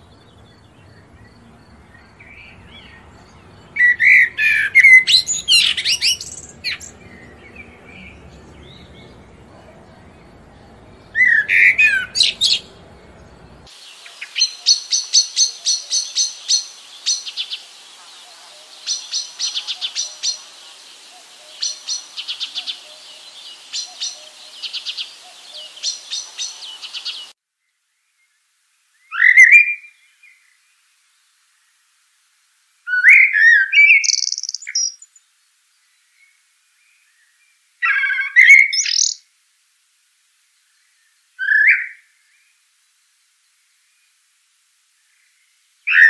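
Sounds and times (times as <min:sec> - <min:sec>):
songbirds twittering: 0:00.0 - 0:28.4, 0:32.9 - 0:39.2, 0:45.0 - 0:46.0
background hiss: 0:00.0 - 0:46.0
bird whistling phrases: 0:03.8 - 0:08.9, 0:11.1 - 0:12.7.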